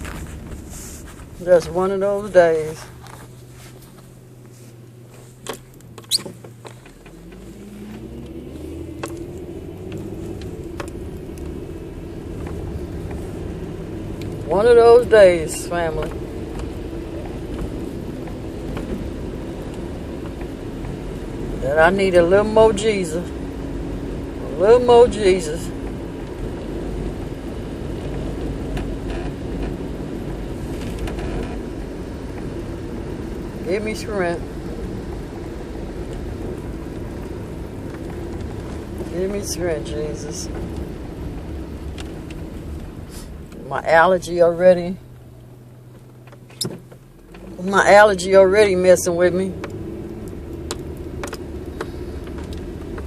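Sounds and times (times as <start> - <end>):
car engine idling and revving: 0.0 - 53.0
short high squeak: 6.0 - 6.4.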